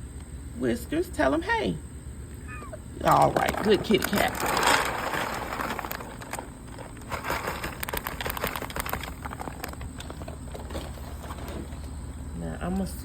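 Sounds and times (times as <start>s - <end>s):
cat crunching food: 2.6s - 12.0s.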